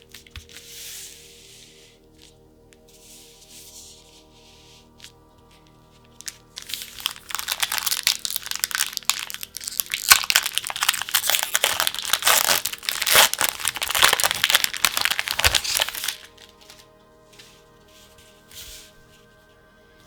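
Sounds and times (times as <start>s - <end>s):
plastic packaging crinkling and tearing: 6.0s - 16.9s.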